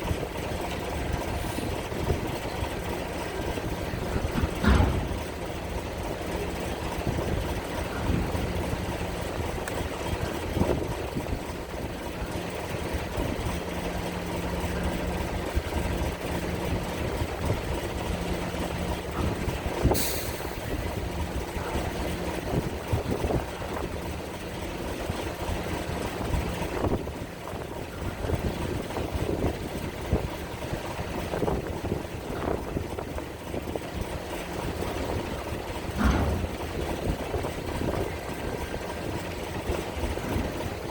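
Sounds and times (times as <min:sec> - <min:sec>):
heavy engine humming: 0:00.0 - 0:40.9
metal clanks and knocks: 0:03.2 - 0:08.5, 0:35.0 - 0:38.2.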